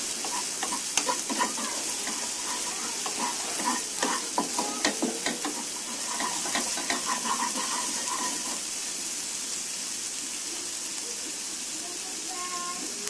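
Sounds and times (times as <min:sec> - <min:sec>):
spatula scraping pan: 0:00.0 - 0:09.0
paste sizzling in hot oil: 0:00.0 - 0:13.0.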